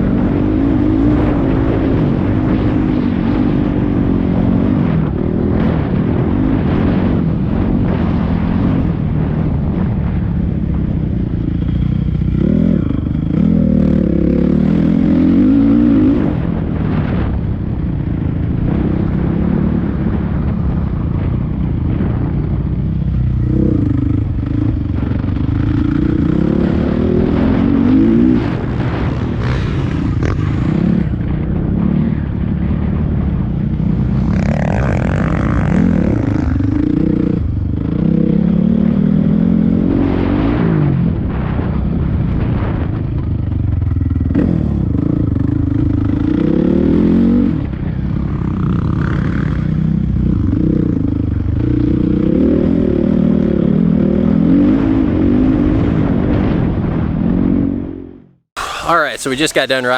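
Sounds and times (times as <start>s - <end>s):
dirt bike engine revving: 0.0s - 10.2s, 11.6s - 17.3s, 23.1s - 33.1s, 43.7s - 59.9s.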